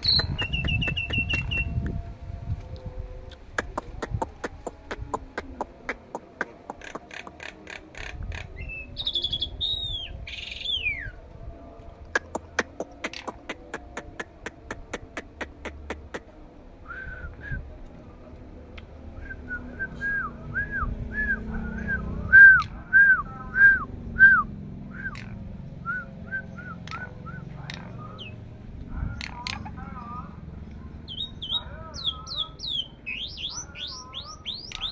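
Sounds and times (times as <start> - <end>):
songbird singing: 0.0 - 2.3, 3.2 - 34.9.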